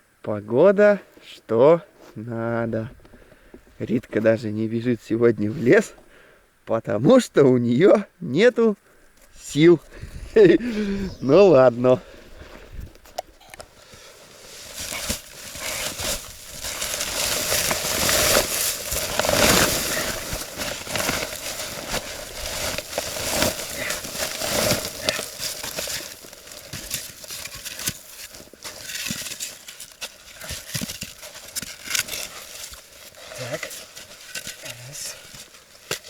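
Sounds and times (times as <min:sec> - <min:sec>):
snow crunching: 0:09.5 - 0:12.7, 0:13.7 - 0:36.0.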